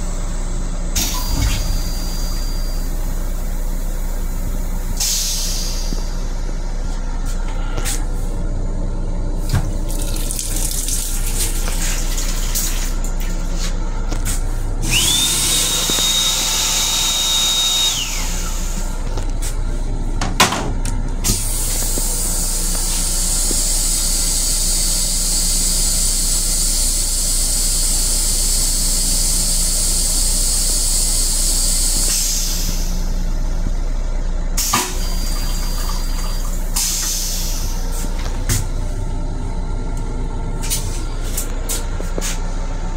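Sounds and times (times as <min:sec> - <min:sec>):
train hum: 0:00.0 - 0:28.2, 0:29.0 - 0:42.9
toilet whine: 0:00.9 - 0:33.6, 0:34.6 - 0:42.9.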